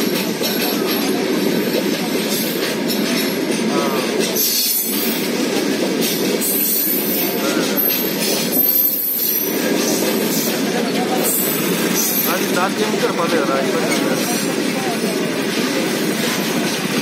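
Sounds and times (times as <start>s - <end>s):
freight train rumbling past: 0.0s - 17.0s
train wheels knocking: 0.0s - 17.0s
high wheel squeal: 6.4s - 10.6s, 11.2s - 12.5s.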